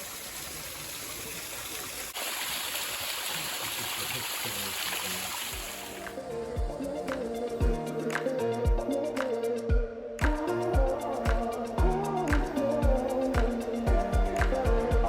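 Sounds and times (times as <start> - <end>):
running water rushing: 0.0 - 6.3
background music: 5.6 - 15.0.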